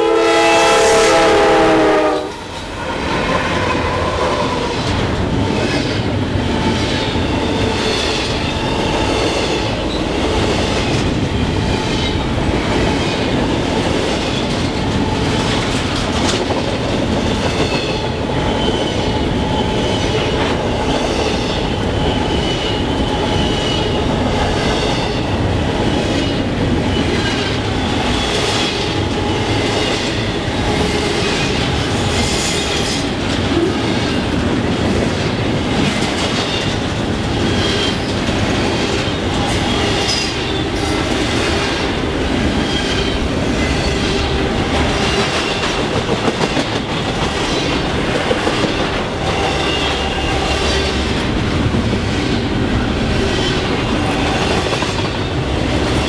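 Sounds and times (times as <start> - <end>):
train horn: 0.0 - 4.7
low train rumble: 0.0 - 56.0
train wheel clatter: 3.4 - 56.0.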